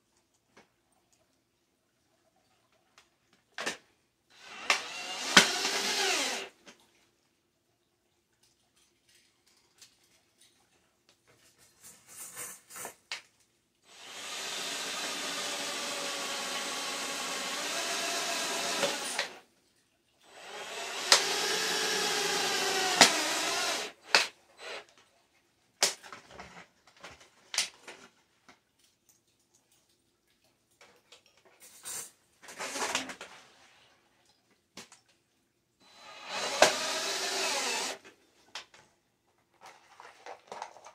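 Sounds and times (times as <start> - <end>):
power drill driving screws into metal: 4.4 - 6.6, 13.9 - 19.4, 20.3 - 24.9, 35.8 - 38.1.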